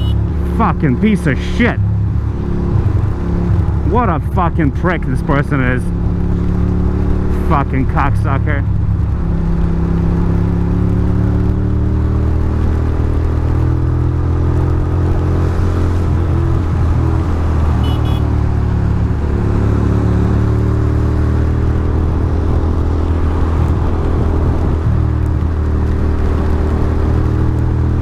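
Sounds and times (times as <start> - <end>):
motorcycle engine running: 0.0 - 1.2, 1.8 - 28.0
wet road noise: 0.0 - 28.0.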